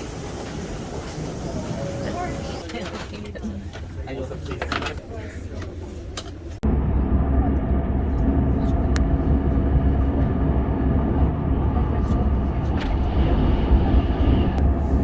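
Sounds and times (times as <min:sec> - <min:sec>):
vehicle running rumble: 0:06.6 - 0:15.0.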